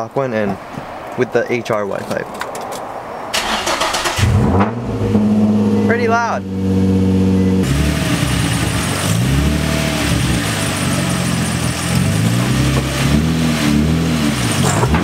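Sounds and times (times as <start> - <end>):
car engine idling and revving: 3.4 - 15.0.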